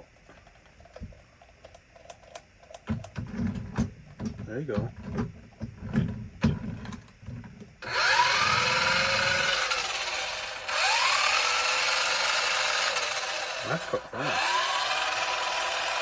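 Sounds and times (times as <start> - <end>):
rc car motor whirring: 7.8 - 16.0.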